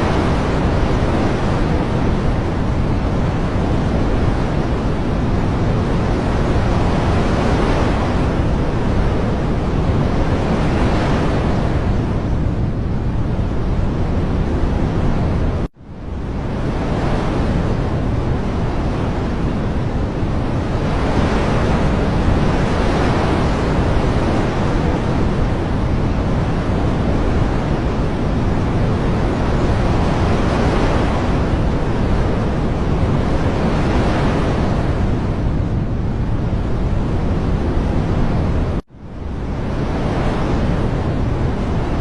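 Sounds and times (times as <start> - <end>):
rushing water: 0.0 - 42.0.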